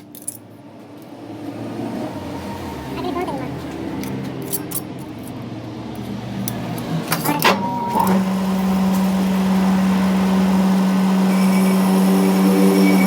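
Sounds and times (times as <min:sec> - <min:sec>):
machine motor humming: 0:07.4 - 0:13.0.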